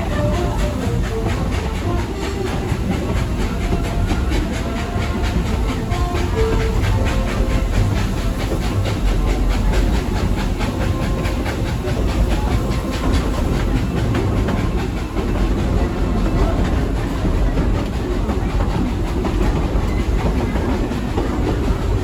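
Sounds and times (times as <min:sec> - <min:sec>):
steam hiss: 0:00.0 - 0:22.0
steam train rumbling: 0:00.0 - 0:22.0.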